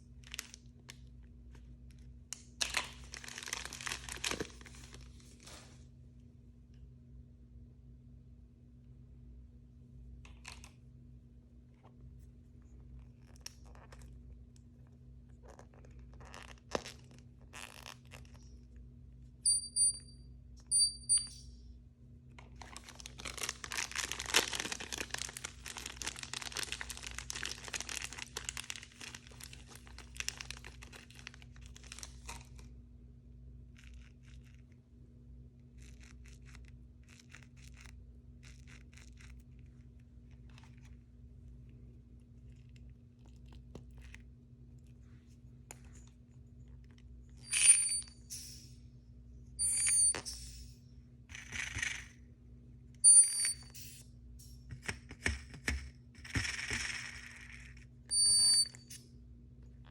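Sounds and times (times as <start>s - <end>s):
packaging tearing and crinkling: 2.6s - 5.1s, 22.6s - 32.6s
short high beeps: 19.5s - 21.5s.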